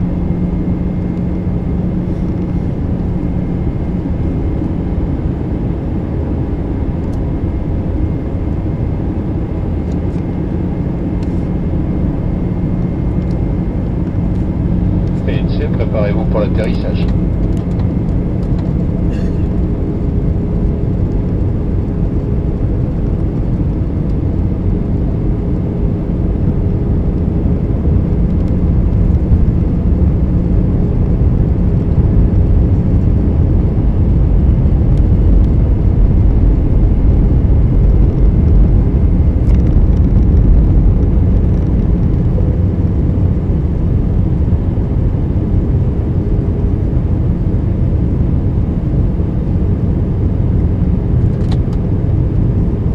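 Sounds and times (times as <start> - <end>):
airplane cabin rumble: 0.0 - 52.9.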